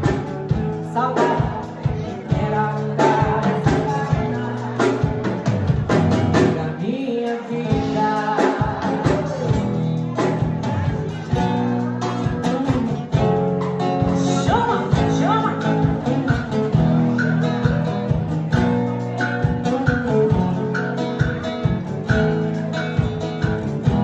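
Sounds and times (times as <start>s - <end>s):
acoustic guitar strumming: 0.0s - 24.0s
steady beat: 7.7s - 24.0s.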